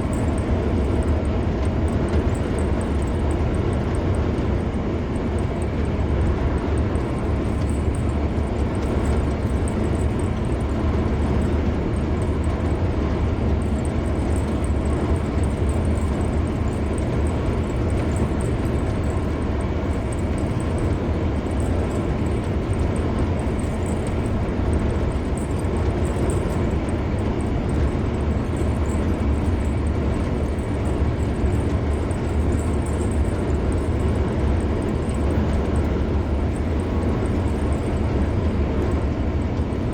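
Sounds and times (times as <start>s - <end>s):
car driving on highway: 0.0s - 39.9s.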